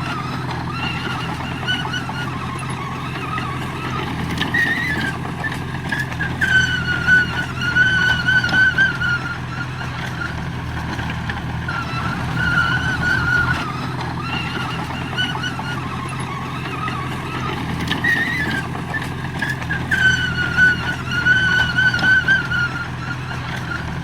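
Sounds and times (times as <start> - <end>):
diesel engine running: 0.0 - 24.0
high wavering whine: 6.9 - 17.4.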